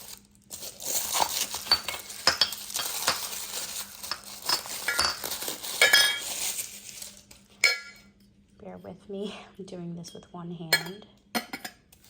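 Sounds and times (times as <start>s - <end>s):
glass teapot parts clinking: 0.9s - 6.4s, 7.6s - 8.0s, 10.7s - 11.8s.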